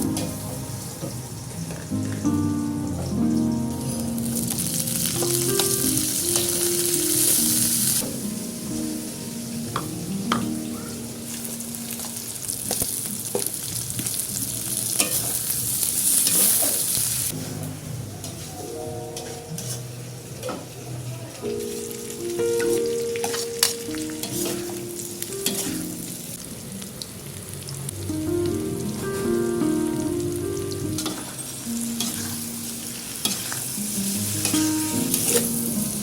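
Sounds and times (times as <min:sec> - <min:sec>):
batter sizzling in hot oil: 0:00.0 - 0:17.4, 0:31.0 - 0:36.0.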